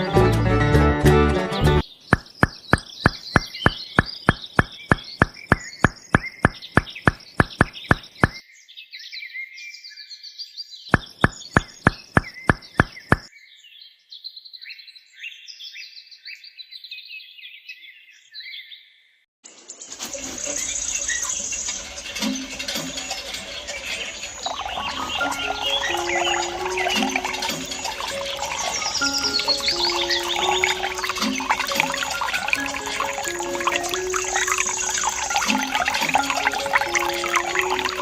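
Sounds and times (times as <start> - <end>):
birds chirping: 1.8 - 8.4, 10.9 - 13.3, 20.4 - 38.0
hand pump handle knocking: 2.1 - 8.4, 11.0 - 13.3.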